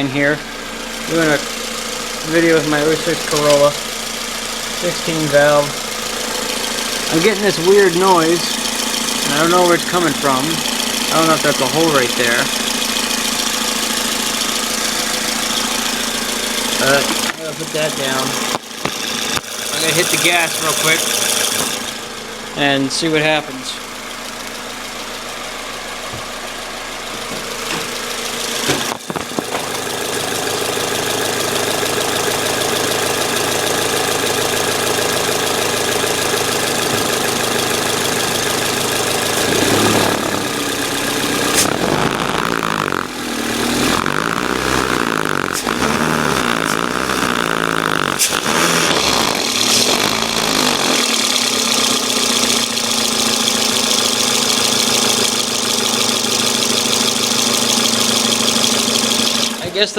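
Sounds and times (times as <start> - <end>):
car engine revving: 0.0 - 59.9
engine ticking noise: 0.0 - 59.9.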